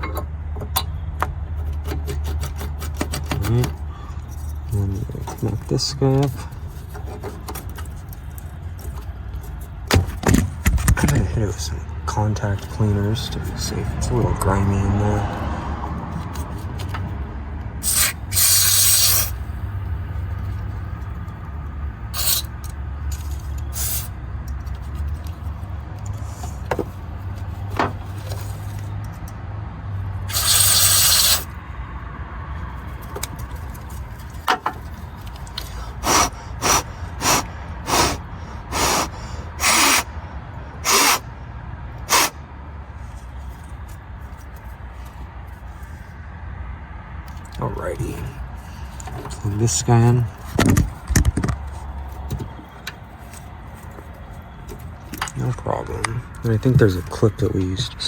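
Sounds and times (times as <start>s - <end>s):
aerosol spray hissing: 17.8s - 19.4s, 30.3s - 31.5s, 36.1s - 40.0s, 42.1s - 42.3s
short spray puffs: 17.8s - 19.4s, 30.3s - 31.5s, 36.0s - 40.1s, 40.8s - 41.2s, 42.0s - 42.4s.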